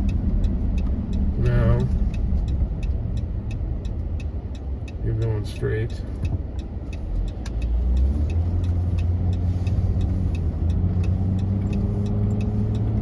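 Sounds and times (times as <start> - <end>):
turn signal ticking: 0.0 - 13.0
car engine pulling away: 7.0 - 13.0.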